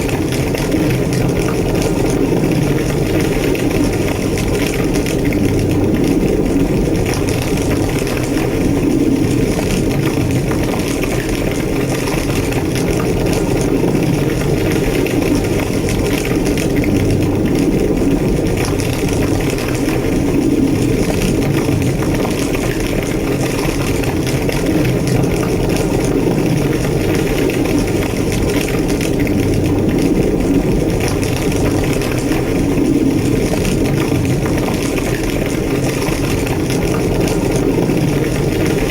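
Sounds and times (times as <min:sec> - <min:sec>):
fire roaring and crackling: 0:00.0 - 0:38.9.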